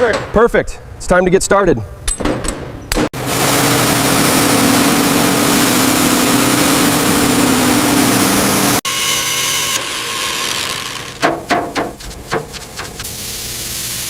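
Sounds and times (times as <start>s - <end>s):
machine motor hum and hiss: 3.2s - 14.0s.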